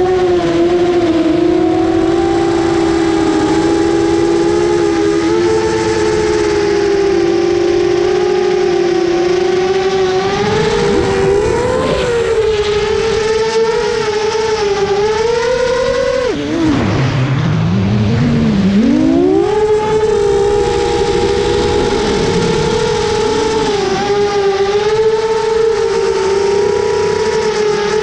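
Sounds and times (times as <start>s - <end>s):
quadcopter motors whining: 0.0s - 28.0s.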